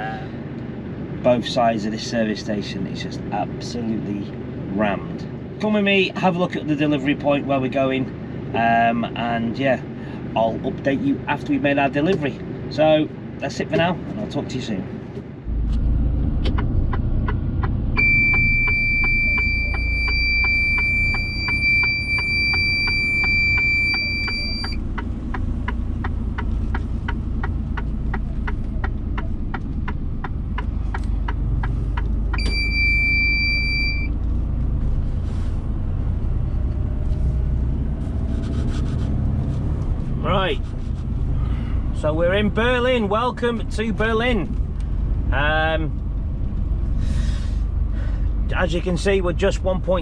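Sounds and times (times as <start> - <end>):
lorry engine and road rumble: 0.0 - 50.0
high electronic warning beep: 18.0 - 24.8, 32.4 - 34.1.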